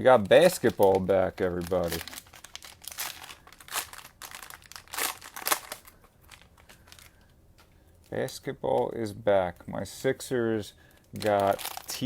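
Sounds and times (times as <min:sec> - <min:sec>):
cellophane wrappers crinkling: 0:00.1 - 0:07.3, 0:10.9 - 0:12.0.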